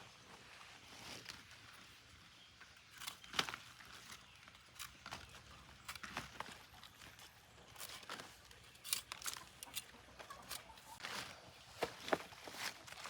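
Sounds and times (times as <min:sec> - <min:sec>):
rustling and crinkling: 0:00.0 - 0:13.0.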